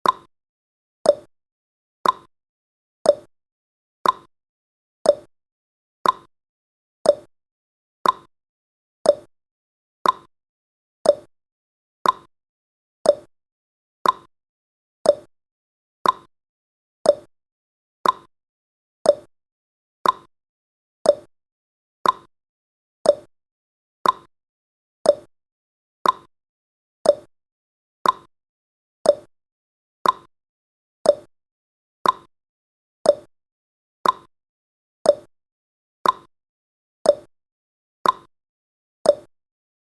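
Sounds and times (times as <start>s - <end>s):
clock ticking: 2.0s - 2.3s, 6.0s - 6.3s, 8.0s - 8.3s, 10.0s - 10.3s, 12.0s - 12.3s, 14.0s - 14.3s, 15.1s - 15.3s, 16.0s - 16.3s, 18.0s - 18.3s, 20.0s - 20.3s, 21.1s - 21.3s, 22.0s - 22.3s, 24.0s - 24.3s, 25.1s - 25.3s, 26.0s - 26.3s, 27.1s - 27.3s, 28.0s - 28.3s, 29.1s - 29.3s, 30.0s - 30.3s, 31.1s - 31.3s, 32.0s - 32.3s, 34.0s - 34.3s, 36.0s - 36.3s, 38.0s - 38.3s.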